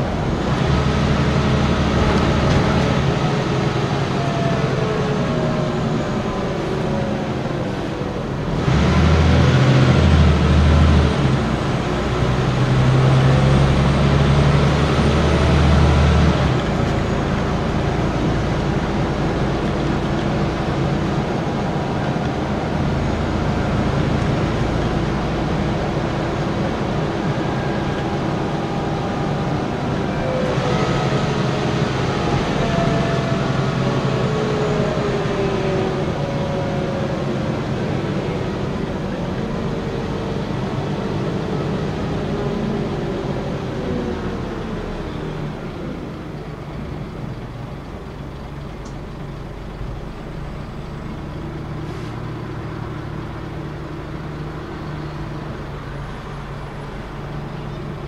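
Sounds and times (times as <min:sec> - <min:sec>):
bus engine running: 0:00.0 - 0:58.0
whine shifting in pitch: 0:21.1 - 0:40.1.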